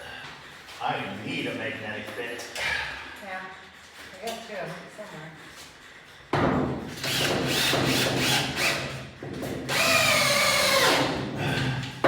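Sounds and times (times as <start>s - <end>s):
power drill driving screws: 7.0s - 9.0s, 9.7s - 11.1s.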